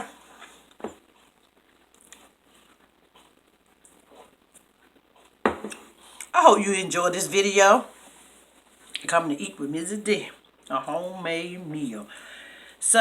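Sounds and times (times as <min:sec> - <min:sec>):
faint clicks and rustles: 0:00.0 - 0:06.3, 0:08.0 - 0:09.1.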